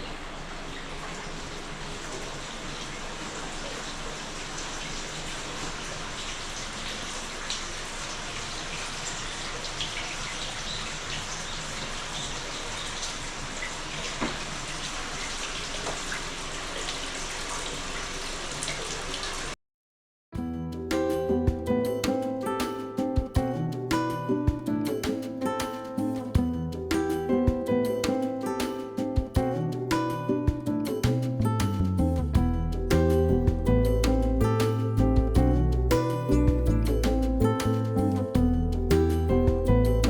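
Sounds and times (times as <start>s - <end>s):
water dripping: 0.0s - 19.6s
water splashing and running: 0.0s - 19.6s.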